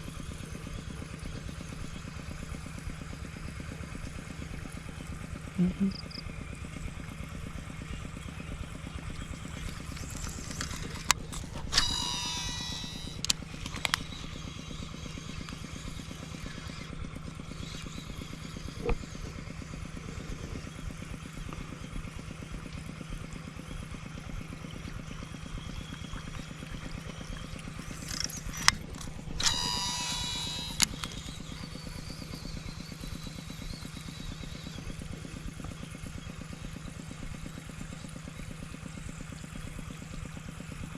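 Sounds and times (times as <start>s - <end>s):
fishing reel spool whirring: 0.0s - 40.9s
low engine-like hum: 0.0s - 40.9s
fishing reel clicks: 9.2s - 19.0s, 27.8s - 34.8s.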